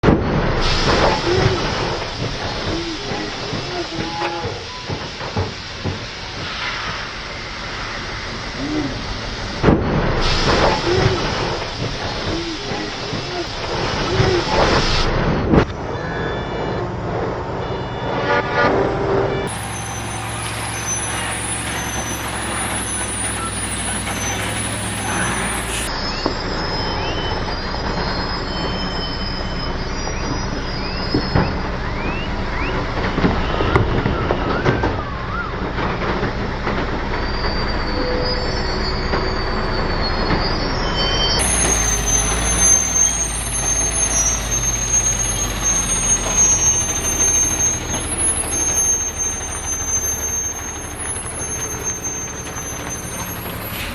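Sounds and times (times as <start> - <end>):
traffic noise: 0.0 - 37.2, 37.9 - 53.9
heavy truck engines: 0.0 - 53.9
metal clanks: 19.5 - 25.9.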